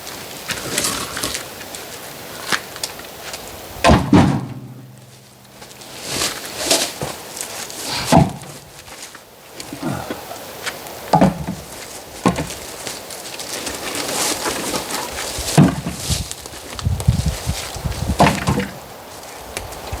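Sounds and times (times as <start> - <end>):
wood knocking and scraping: 3.3 - 8.8, 11.1 - 12.8, 13.7 - 18.8
heavy wooden thuds: 3.8 - 7.2, 7.9 - 8.8, 11.1 - 12.6, 15.5 - 16.3, 16.9 - 18.8.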